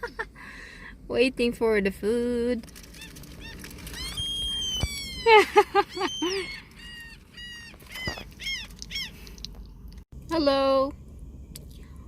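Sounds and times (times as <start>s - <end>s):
gulls calling: 2.8s - 9.3s.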